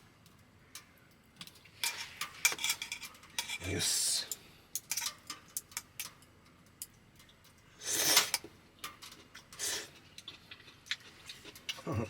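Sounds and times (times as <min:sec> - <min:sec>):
utensils clicking against pot: 0:00.8 - 0:09.8
person slurping noodles: 0:07.8 - 0:08.4.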